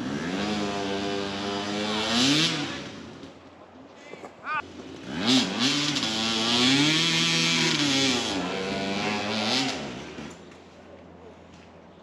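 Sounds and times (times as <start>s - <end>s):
dirt bike engine revving: 0.0s - 3.4s, 4.6s - 10.4s.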